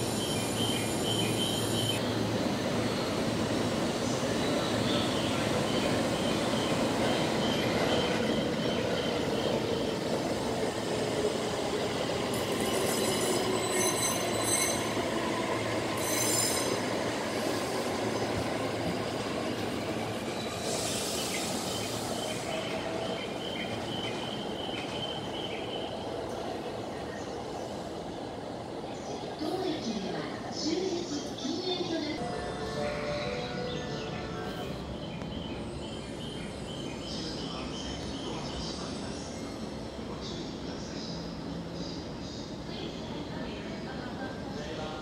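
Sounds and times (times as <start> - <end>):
train wheels squealing: 0.0 - 10.0, 12.3 - 17.7, 19.9 - 25.4
rumble of wheels on rail: 0.0 - 32.7, 33.3 - 45.0.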